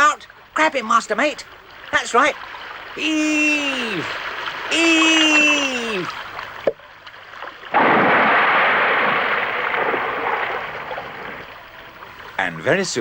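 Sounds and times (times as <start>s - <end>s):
cartoon water rushing and splashing: 2.9s - 6.3s, 7.7s - 12.0s.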